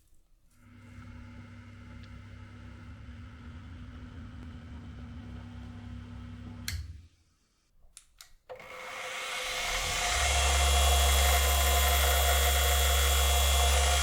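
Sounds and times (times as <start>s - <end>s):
clicks: 6.6s - 7.0s, 7.8s - 8.7s
power tool motor whirring: 8.5s - 14.0s.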